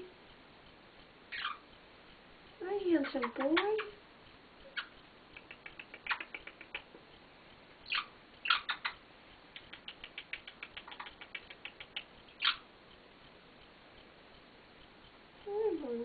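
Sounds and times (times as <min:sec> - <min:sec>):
parrot squeaking: 0:01.3 - 0:01.7, 0:02.9 - 0:04.0, 0:04.6 - 0:06.8, 0:07.8 - 0:09.0, 0:09.7 - 0:12.7
parrot clicking: 0:03.0 - 0:04.0, 0:04.6 - 0:07.1, 0:07.8 - 0:12.6.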